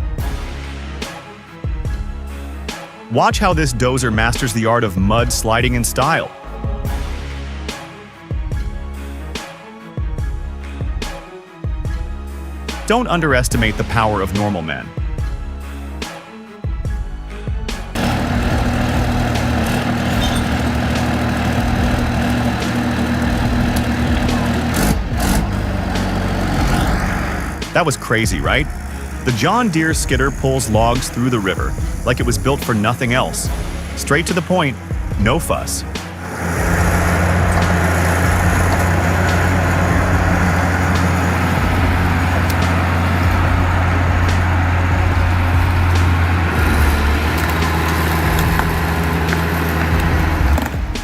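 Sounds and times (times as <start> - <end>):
heavy machine engine humming: 18.0 - 51.0.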